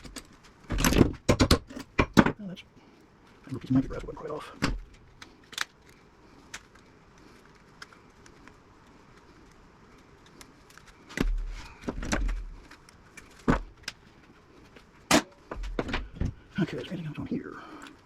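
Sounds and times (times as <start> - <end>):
metal parts clanking and knocking: 0.0 - 2.4.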